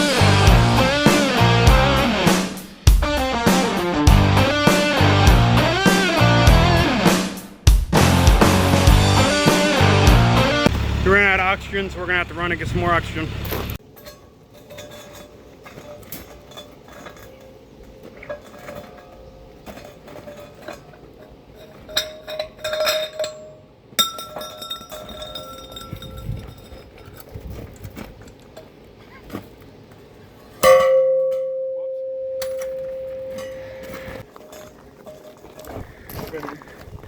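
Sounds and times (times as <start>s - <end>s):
metal parts clinking: 13.8s - 28.7s
loud ringing metal clang: 30.6s - 34.2s.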